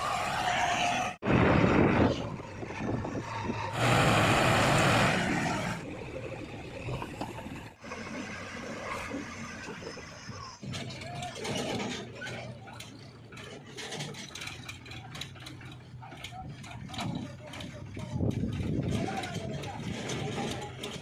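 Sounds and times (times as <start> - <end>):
heavy diesel machinery running: 1.2 - 21.0.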